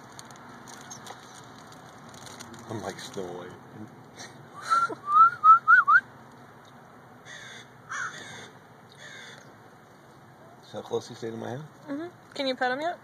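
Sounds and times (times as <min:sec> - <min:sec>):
harsh bird calls: 0:07.2 - 0:10.6.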